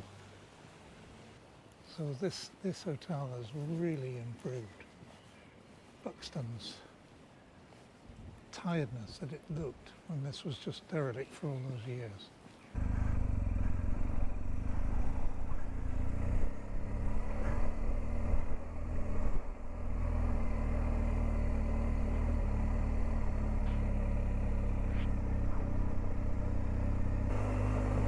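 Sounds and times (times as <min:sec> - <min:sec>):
motorcycle engine droning: 0:12.8 - 0:28.0.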